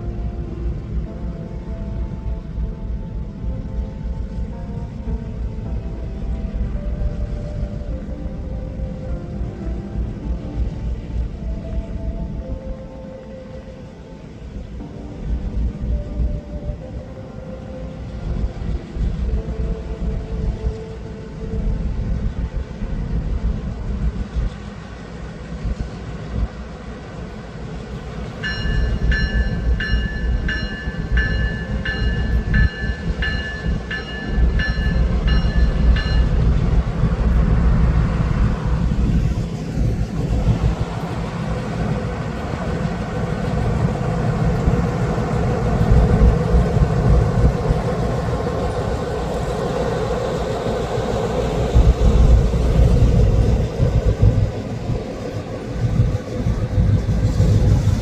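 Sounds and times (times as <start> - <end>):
freight train rumbling: 0.0 - 58.0
train bell ringing: 28.0 - 37.5.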